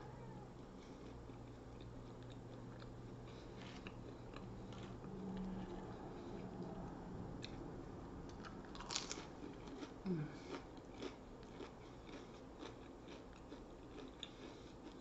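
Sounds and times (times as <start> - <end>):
crunchy onion ring chewing: 0.7 - 15.0.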